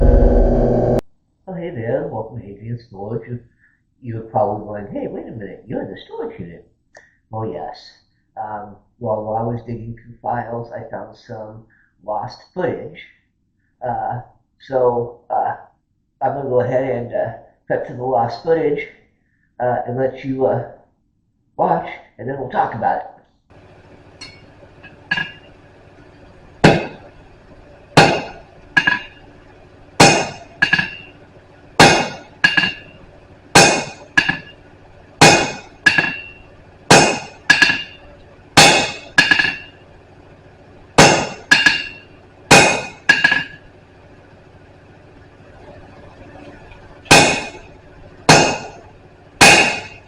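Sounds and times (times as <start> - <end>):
hammer striking steel on anvil: 24.2 - 25.4, 26.6 - 27.1, 28.0 - 29.3, 30.0 - 31.2, 31.8 - 33.0, 33.6 - 34.6, 35.2 - 39.8, 41.0 - 43.6, 47.1 - 47.7, 48.3 - 48.8, 49.4 - 50.0.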